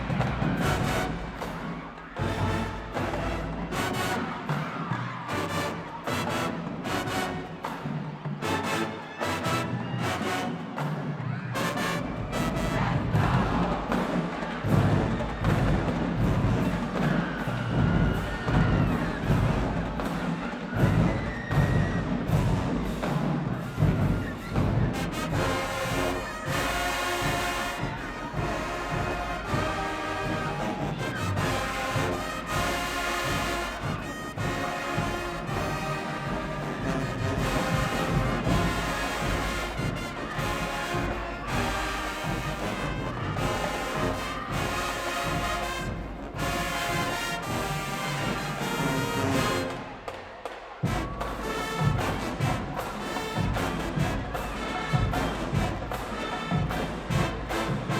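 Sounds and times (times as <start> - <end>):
brass section playing: 0.0 - 11.0, 11.6 - 16.9, 23.7 - 50.2, 50.8 - 57.9.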